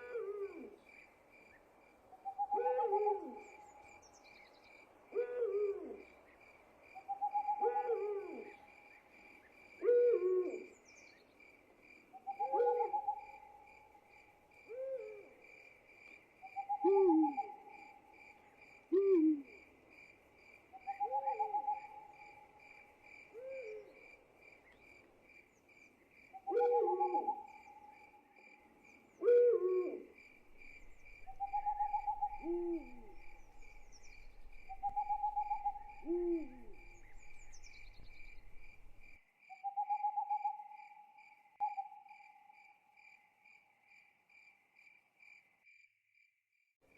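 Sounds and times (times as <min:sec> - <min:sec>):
owl hooting: 0:02.2 - 0:03.8, 0:05.1 - 0:06.0, 0:07.1 - 0:08.6, 0:09.8 - 0:10.7, 0:12.2 - 0:13.6, 0:16.5 - 0:17.9, 0:18.9 - 0:19.6, 0:20.8 - 0:22.4, 0:26.4 - 0:28.0, 0:29.2 - 0:41.0
insects chirping: 0:15.4 - 0:45.8.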